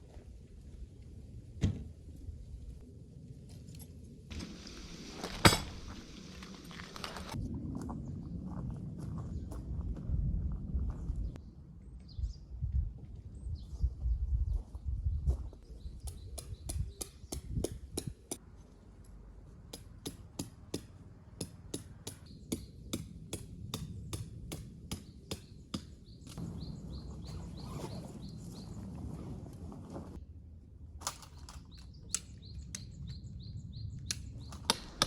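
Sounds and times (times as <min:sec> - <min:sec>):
birds chirping: 0:15.1 - 0:18.8, 0:24.9 - 0:29.0, 0:31.6 - 0:35.0.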